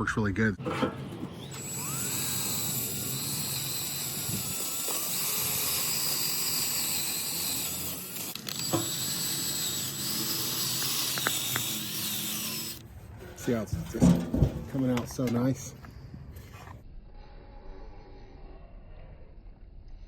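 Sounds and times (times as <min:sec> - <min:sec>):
wire brush scrubbing wood: 0:01.4 - 0:15.3.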